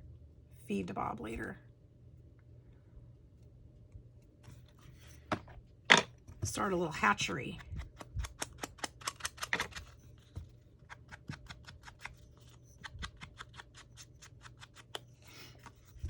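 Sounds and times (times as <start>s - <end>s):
light clicks and snips on paper: 7.6s - 9.9s, 10.8s - 15.9s.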